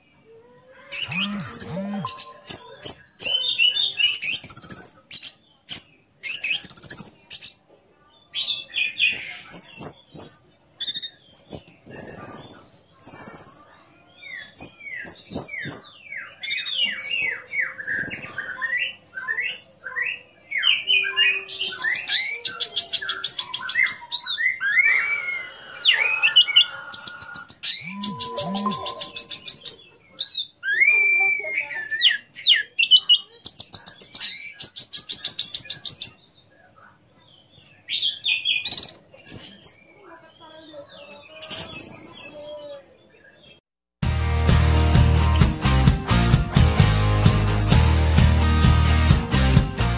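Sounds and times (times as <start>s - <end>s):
thrush singing whistled song: 1.0s - 4.8s, 27.5s - 33.0s, 41.4s - 42.6s.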